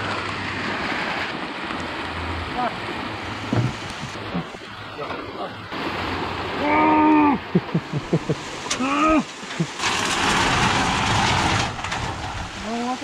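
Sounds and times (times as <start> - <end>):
heavy rain: 0.0 - 13.0
soft knocks: 3.5 - 4.5
person calling: 6.6 - 9.8.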